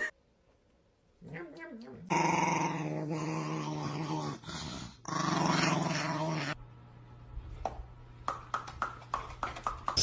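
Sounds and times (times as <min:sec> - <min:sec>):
dog growling: 0:01.2 - 0:06.6.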